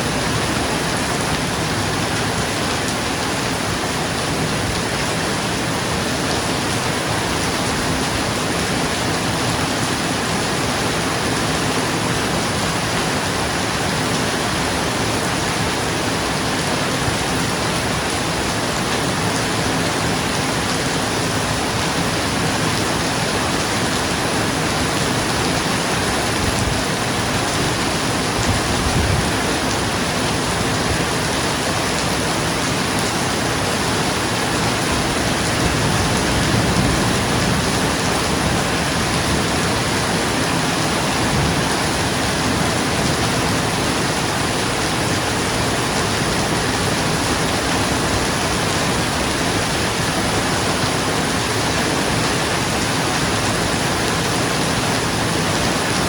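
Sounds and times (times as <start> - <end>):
heavy rain on a roof: 0.0 - 56.0.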